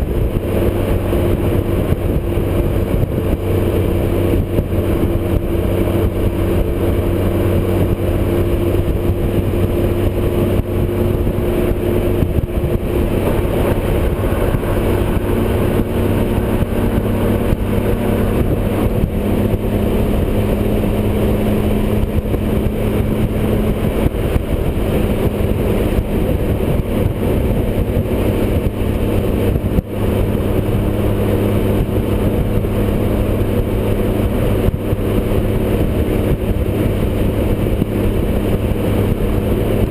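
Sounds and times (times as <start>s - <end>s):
motorcycle engine cruising: 0.0s - 39.9s
wind rush: 0.0s - 39.9s.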